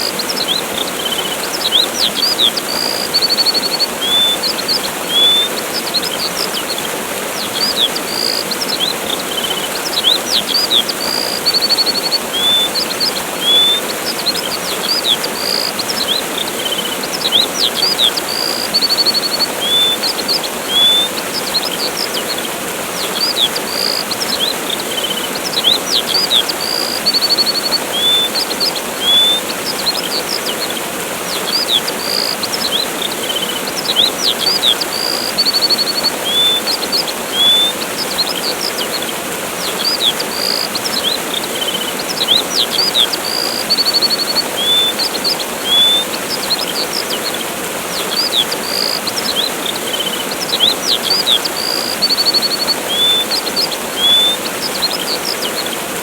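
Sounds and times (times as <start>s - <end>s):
small birds chirping: 0.0s - 56.0s
waterfall rushing: 0.0s - 56.0s.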